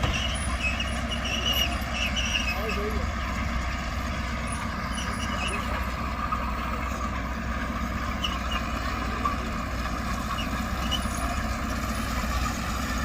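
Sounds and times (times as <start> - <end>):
heavy machine engine droning: 0.0 - 13.0.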